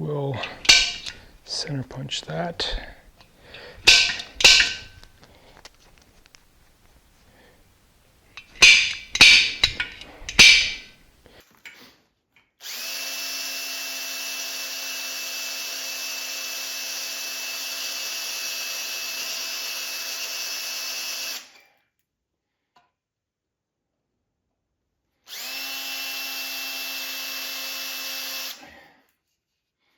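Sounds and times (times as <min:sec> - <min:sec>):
hammer striking center punch: 0:08.4 - 0:11.0
electric drill drilling into steel: 0:12.6 - 0:21.6, 0:25.3 - 0:28.7.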